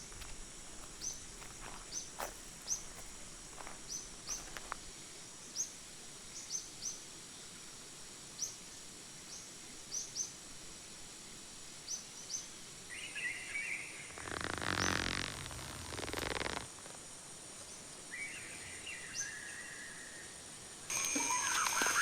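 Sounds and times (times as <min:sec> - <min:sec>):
high insect drone: 0:00.0 - 0:08.5, 0:13.2 - 0:22.0.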